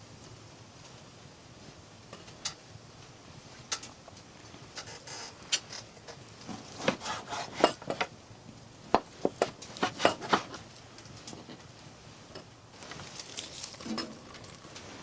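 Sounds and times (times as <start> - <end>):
scrapes and knocks of handling: 4.8 - 8.2, 8.9 - 11.7, 12.4 - 15.0.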